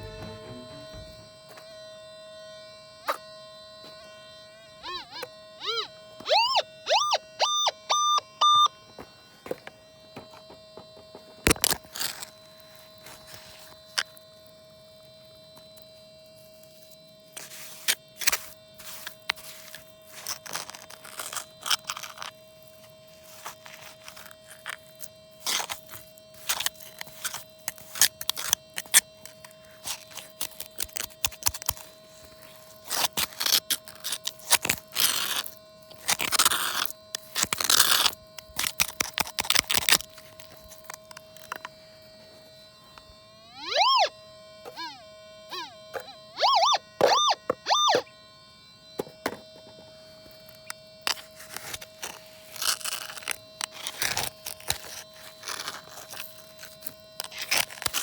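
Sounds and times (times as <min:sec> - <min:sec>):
scraping and crunching: 0:11.1 - 0:14.4, 0:15.0 - 0:42.6, 0:50.2 - 0:58.0.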